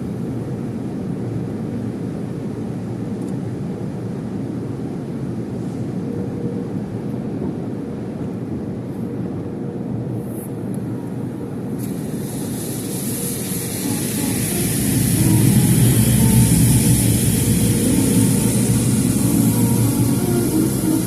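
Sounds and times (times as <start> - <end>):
car wash equipment rumbling: 11.8 - 21.0
high hiss of spray: 11.8 - 21.0.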